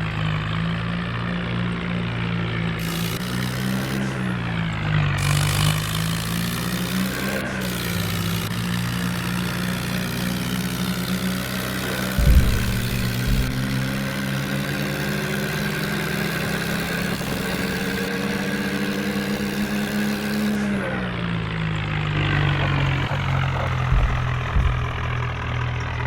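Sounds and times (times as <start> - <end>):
tractor diesel engine running: 0.0 - 26.0
low thumps: 11.2 - 15.2, 22.2 - 25.8.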